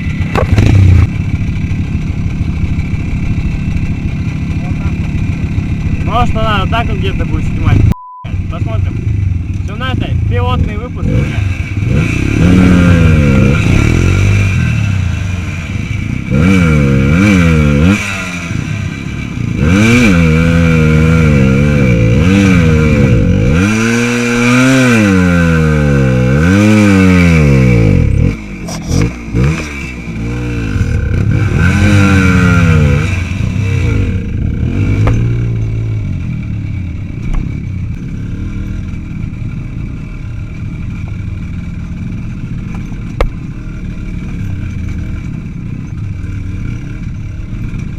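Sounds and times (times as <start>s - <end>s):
small motorcycle engine revving: 0.0s - 7.7s, 8.4s - 47.9s.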